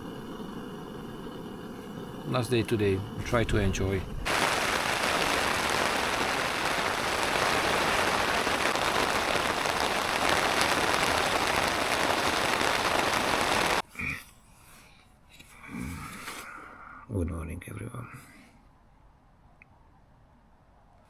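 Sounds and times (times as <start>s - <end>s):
heavy rain on tent fabric: 3.9s - 13.8s.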